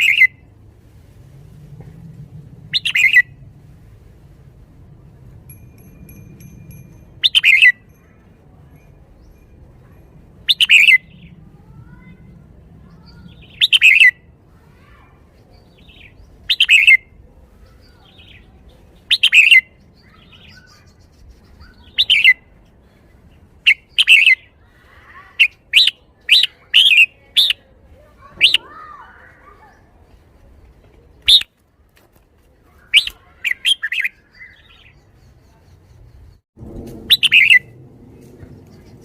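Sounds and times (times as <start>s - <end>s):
bulbul singing bright phrases: 0.0s - 0.4s, 2.6s - 3.4s, 5.1s - 14.6s, 15.2s - 29.9s, 30.7s - 31.5s, 32.7s - 36.4s, 37.1s - 37.8s.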